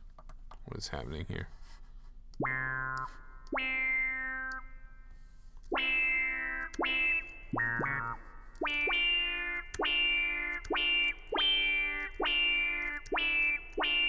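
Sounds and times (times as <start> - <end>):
distorted guitar-like synth notes: 2.4 - 4.7, 5.7 - 14.0.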